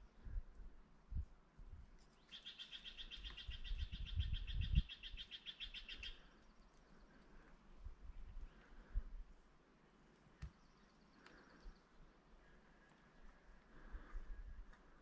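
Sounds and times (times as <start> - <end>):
songbird trilling: 2.2 - 6.4.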